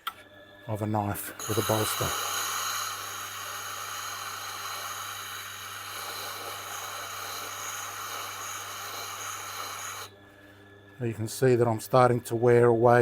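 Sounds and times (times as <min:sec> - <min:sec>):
motor humming: 0:01.3 - 0:10.2
stone grinding hiss: 0:01.4 - 0:10.1.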